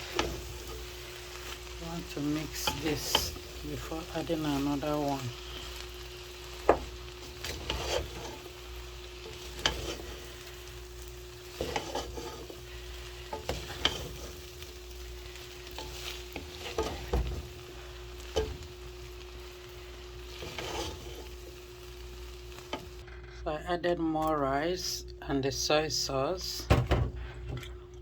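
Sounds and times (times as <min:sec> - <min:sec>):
spatula scraping and knocking on pan: 0:00.0 - 0:00.8, 0:06.5 - 0:08.6, 0:09.2 - 0:10.5, 0:11.3 - 0:14.8, 0:15.6 - 0:17.6, 0:18.2 - 0:18.7, 0:20.3 - 0:21.5
rice and vegetables sizzling in a pan: 0:00.0 - 0:23.1.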